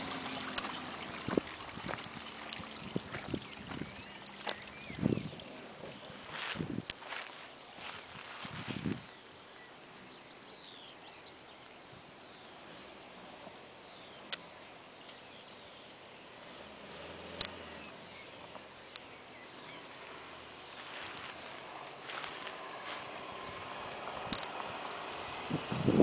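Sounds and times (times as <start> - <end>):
distant car engine running: 0.0 - 8.0, 12.6 - 26.0
outdoor background noise: 0.0 - 26.0
bird chirps: 3.2 - 22.6.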